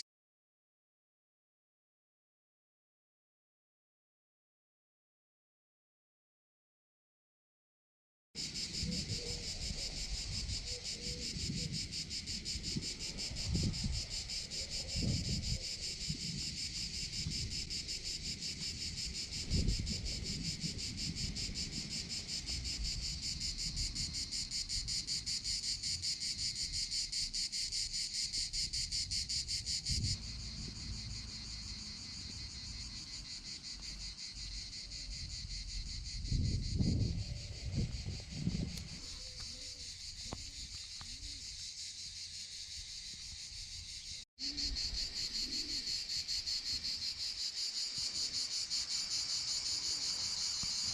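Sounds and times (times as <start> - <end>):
wind rumbling on microphone: 8.4 - 27.4, 28.3 - 41.5
insects buzzing chorus: 8.4 - 50.9.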